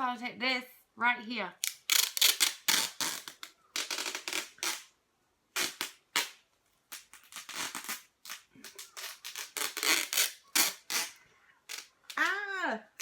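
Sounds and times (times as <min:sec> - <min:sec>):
sticky tape pulled off roll: 0:01.6 - 0:04.9, 0:05.5 - 0:12.4.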